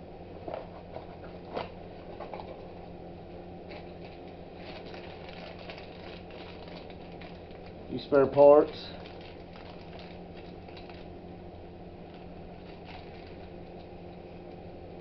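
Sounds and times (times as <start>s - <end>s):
low electrical hum: 0.0s - 15.0s
packaging rustling: 3.7s - 11.2s, 12.0s - 14.0s.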